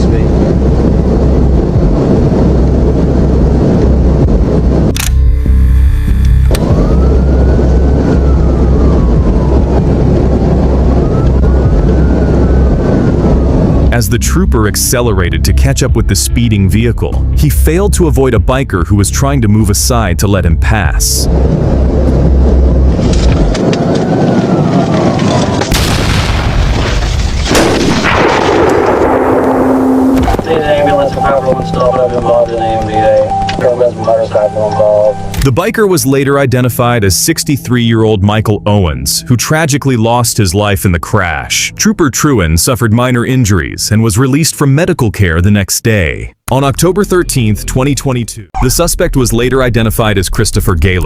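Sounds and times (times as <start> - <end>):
wind and engine rushing: 0.0 - 45.4, 46.1 - 51.0
police siren wailing: 6.1 - 14.0, 21.8 - 25.8, 29.4 - 35.4
hard crash impacts: 25.4 - 30.5
steady tones: 27.5 - 42.5.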